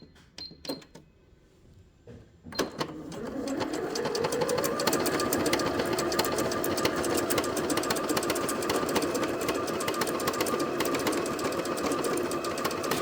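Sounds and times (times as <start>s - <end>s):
sewing machine running: 2.6s - 13.0s.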